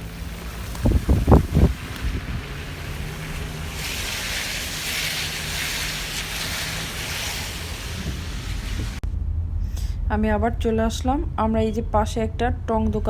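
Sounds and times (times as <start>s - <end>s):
tyre and wind hiss: 0.0s - 9.0s
low engine rumble: 0.0s - 13.0s.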